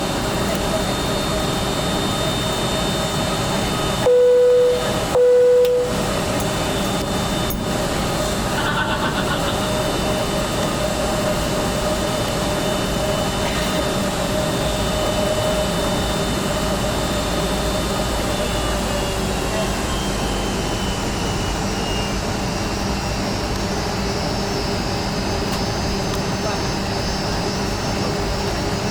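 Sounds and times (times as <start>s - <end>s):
airliner cabin and engine noise: 0.0s - 28.9s
loud beeps: 4.0s - 6.2s.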